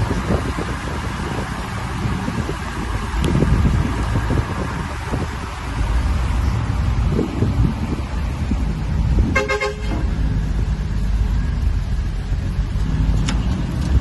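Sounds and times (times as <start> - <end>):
road traffic rumble: 0.0 - 14.0
wind on microphone: 0.0 - 14.0
vehicle horn toot: 9.3 - 10.1.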